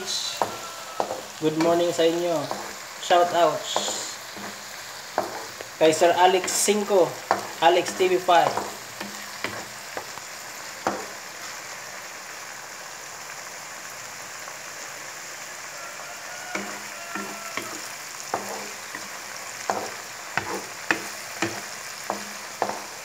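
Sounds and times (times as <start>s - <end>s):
wooden spatula scraping a pan: 0.0s - 10.1s, 16.5s - 23.0s
vegetables sizzling in a wok: 0.0s - 23.0s.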